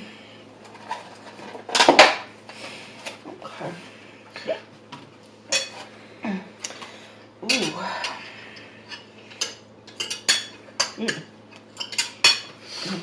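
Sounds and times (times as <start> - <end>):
cutlery and containers clattering: 0.7 - 2.2, 11.8 - 12.5.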